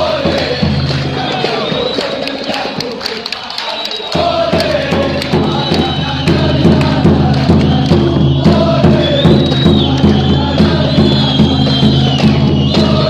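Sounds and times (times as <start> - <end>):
crowd chanting: 0.0 - 13.0
rhythmic backing with bass line: 4.2 - 13.0.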